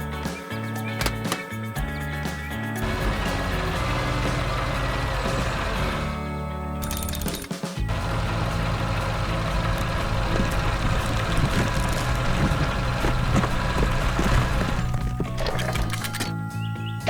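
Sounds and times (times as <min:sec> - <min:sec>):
heavy vehicle engine running: 0:02.8 - 0:16.3.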